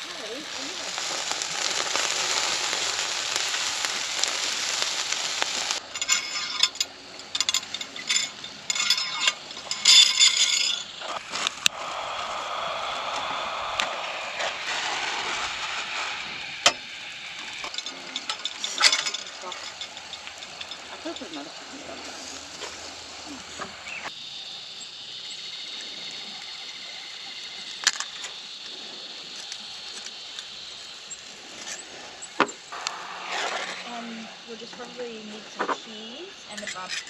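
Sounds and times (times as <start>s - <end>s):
food sizzling in a pan: 0.0s - 37.0s
metallic clinks and scrapes: 5.8s - 11.5s, 15.9s - 23.0s, 32.8s - 37.0s.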